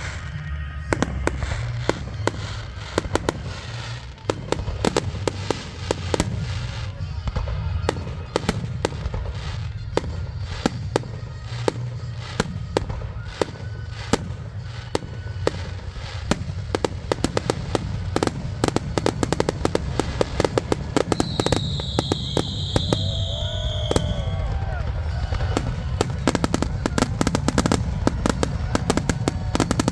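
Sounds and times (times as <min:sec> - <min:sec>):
firework shell bangs: 0:10.0 - 0:29.9.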